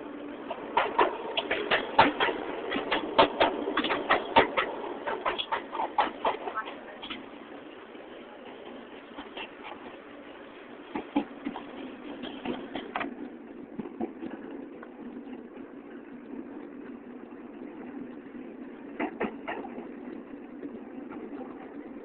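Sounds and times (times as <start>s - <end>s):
subway car rumbling on track: 0.0s - 22.0s
sharp clicks and knocks: 0.5s - 7.2s.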